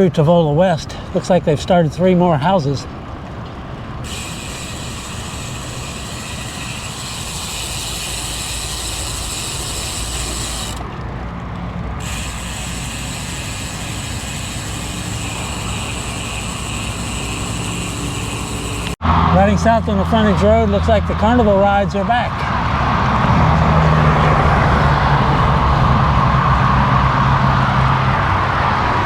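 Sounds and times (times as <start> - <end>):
wind: 0.0 - 29.0
bike freewheel hub ticking: 4.0 - 11.0, 11.9 - 19.0.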